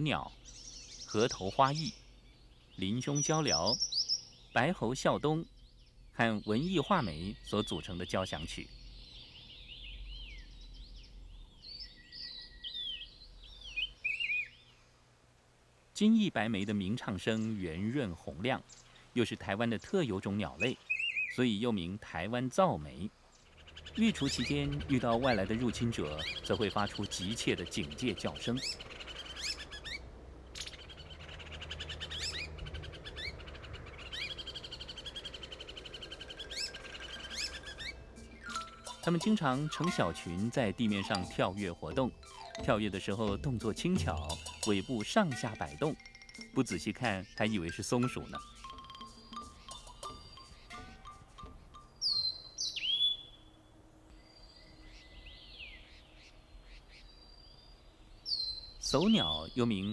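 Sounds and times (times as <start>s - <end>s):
bird alarm calls rattling: 22.8s - 53.4s, 58.3s - 59.9s
bird whistles slurring downward: 24.1s - 40.0s.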